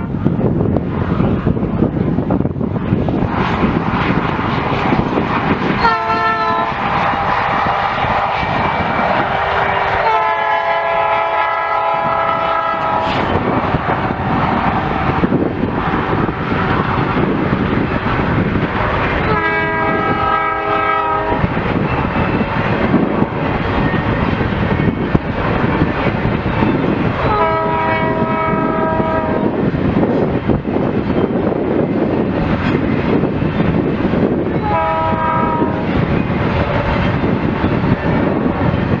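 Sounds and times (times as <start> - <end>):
train rumbling past: 0.0 - 39.0
locomotive air horn blasts: 5.8 - 8.5, 9.3 - 13.3, 19.2 - 21.5, 27.3 - 29.5, 34.6 - 35.9.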